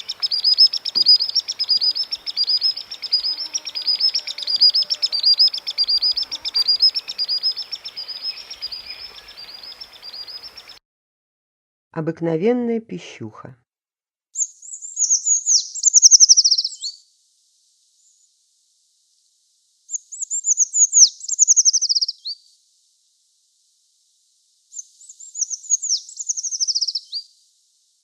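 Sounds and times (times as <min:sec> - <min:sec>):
bird singing descending trills: 0:00.0 - 0:10.8.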